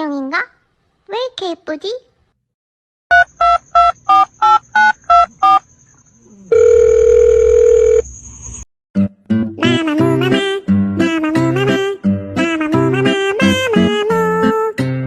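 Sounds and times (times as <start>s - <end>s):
long steady telephone tone: 6.5s - 8.0s.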